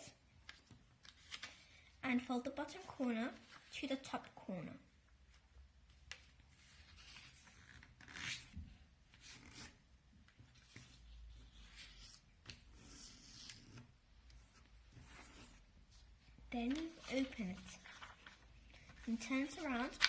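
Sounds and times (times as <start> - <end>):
paper rustling as folded: 0.4 - 1.8, 3.3 - 4.4, 5.3 - 20.0
paper swishes: 14.5 - 20.0.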